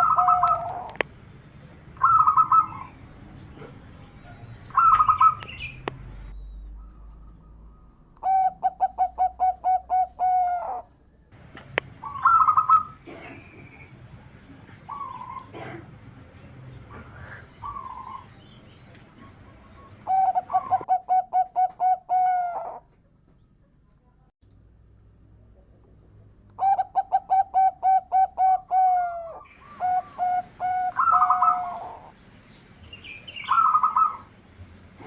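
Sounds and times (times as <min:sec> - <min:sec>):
dove cooing: 0:00.0 - 0:01.0, 0:02.0 - 0:03.0, 0:04.7 - 0:05.7, 0:06.9 - 0:10.9, 0:11.7 - 0:13.9, 0:14.7 - 0:16.0, 0:16.9 - 0:18.3, 0:19.1 - 0:22.9, 0:26.6 - 0:32.2, 0:33.4 - 0:34.3
softer higher bird calls: 0:02.0 - 0:11.0, 0:12.0 - 0:14.0, 0:16.7 - 0:23.7, 0:26.6 - 0:32.2, 0:32.9 - 0:34.3.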